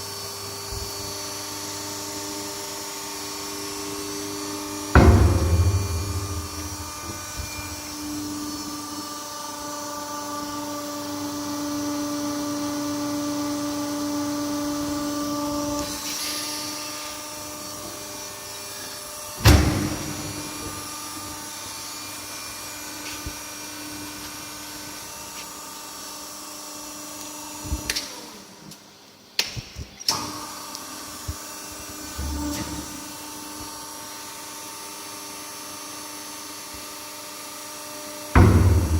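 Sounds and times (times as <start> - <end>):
press machine hum: 5.0 - 8.1
sharp loud bang: 5.0 - 8.1, 38.4 - 38.9.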